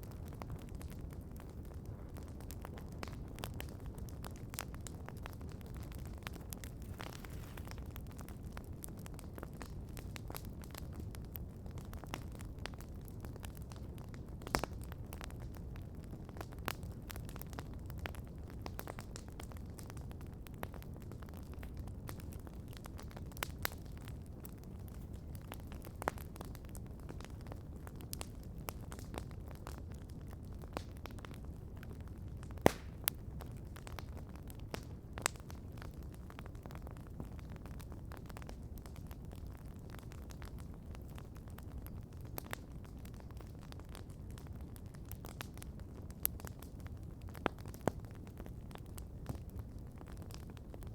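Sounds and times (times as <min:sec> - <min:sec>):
campfire crackling: 0:00.0 - 0:50.9.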